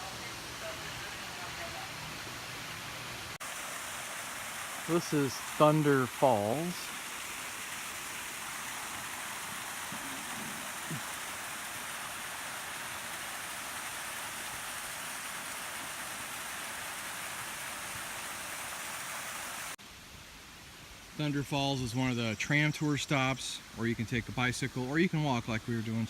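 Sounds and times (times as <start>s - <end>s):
waterfall rushing: 3.3s - 19.8s.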